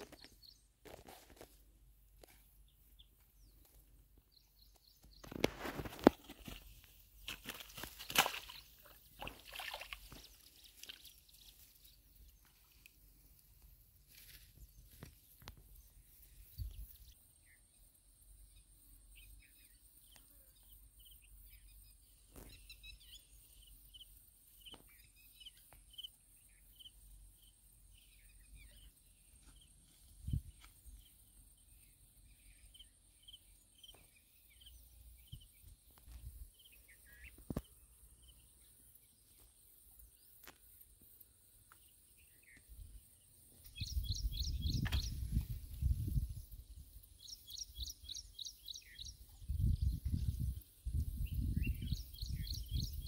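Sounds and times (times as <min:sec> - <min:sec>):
bird chirping: 0:14.6 - 0:39.4, 0:41.7 - 0:53.0.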